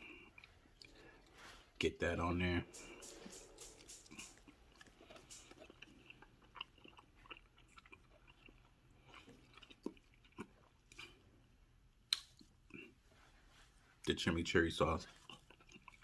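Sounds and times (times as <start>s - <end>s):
chewing mouth clicks and smacks: 2.7s - 11.2s, 15.1s - 16.0s.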